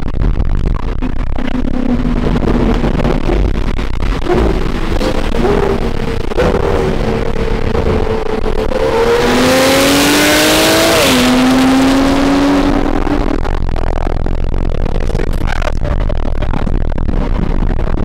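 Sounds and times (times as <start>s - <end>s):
sports car engine accelerating: 1.2s - 15.0s.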